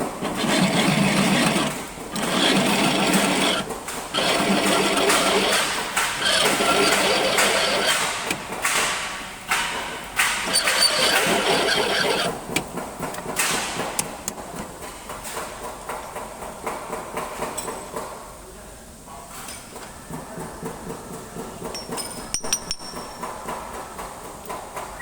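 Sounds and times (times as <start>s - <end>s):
machine tool cutting metal: 0.0s - 12.6s.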